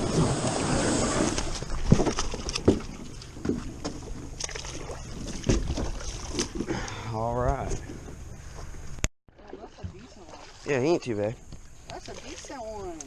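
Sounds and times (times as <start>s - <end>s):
water noise: 0.0s - 13.0s
wind: 0.0s - 13.0s
knocks aboard small boat: 1.3s - 8.7s.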